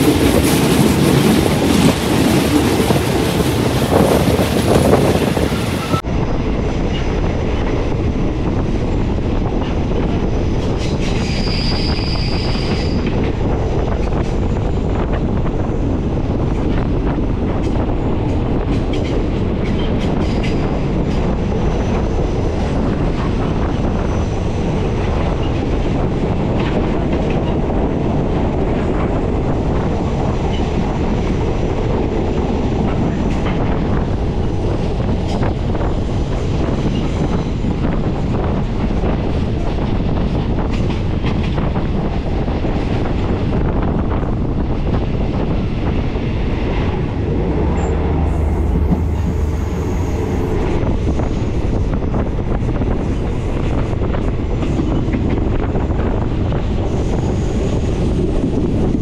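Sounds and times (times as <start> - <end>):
rail clicks: 0.0 - 59.0
train wheels rumbling: 0.0 - 59.0
high-pitched wheel squeal: 11.2 - 13.1, 47.8 - 51.4.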